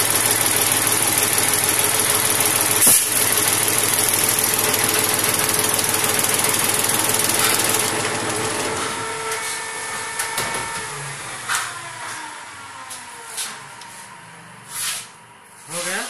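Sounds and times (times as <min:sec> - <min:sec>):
tractor diesel engine running: 0:00.0 - 0:11.7.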